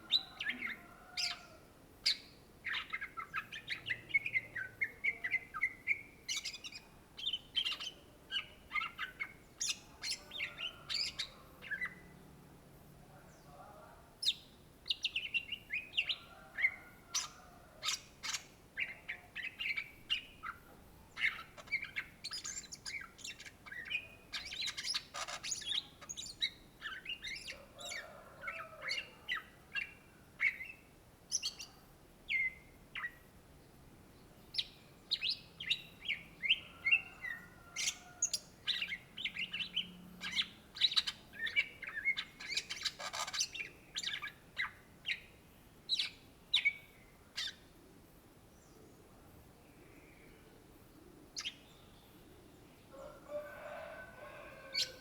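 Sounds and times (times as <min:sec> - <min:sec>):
bird singing chirps and trills: 0:00.1 - 0:12.2, 0:14.2 - 0:33.2, 0:34.4 - 0:47.7, 0:51.3 - 0:52.9.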